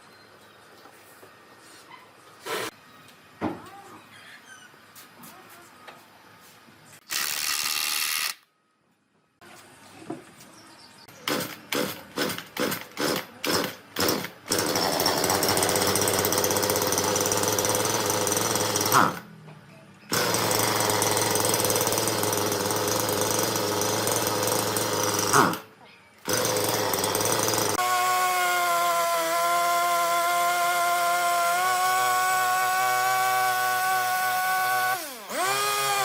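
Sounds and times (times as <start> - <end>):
power tool cutting wood: 11.3 - 19.3, 20.1 - 36.0.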